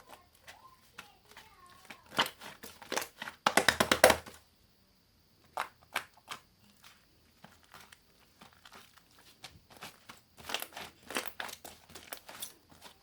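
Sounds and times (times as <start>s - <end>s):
slime squished by hand: 5.5s - 13.0s.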